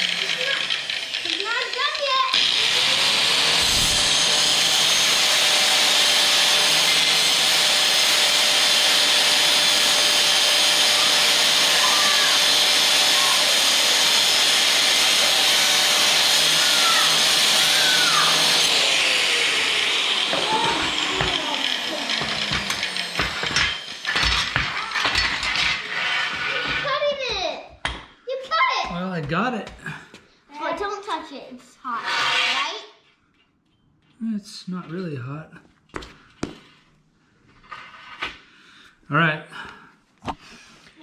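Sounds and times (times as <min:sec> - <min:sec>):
grinder wheel winding down: 0:00.0 - 0:26.8
angle grinder cutting steel: 0:00.0 - 0:27.0, 0:31.9 - 0:32.9.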